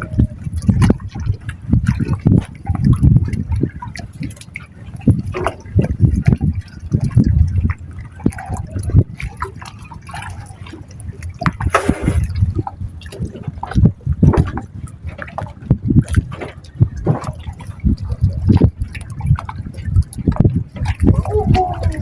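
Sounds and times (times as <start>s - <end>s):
seawater sloshing and lapping: 0.0s - 22.0s
water splashes: 0.0s - 22.0s
water gush: 11.6s - 12.4s.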